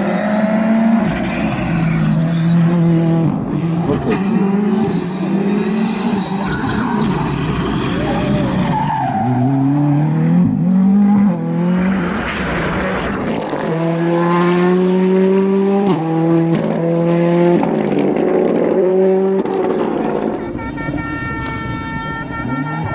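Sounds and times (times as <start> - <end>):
rally car engine at full throttle: 0.0 - 22.9.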